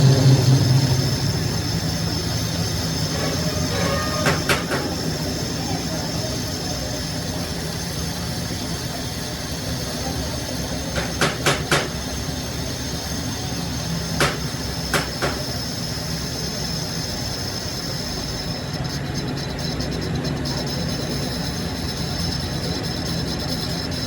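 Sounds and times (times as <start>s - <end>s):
sharp knocks: 0.0s - 5.2s, 11.0s - 12.0s, 14.2s - 15.4s
machine humming and whining: 0.0s - 24.0s.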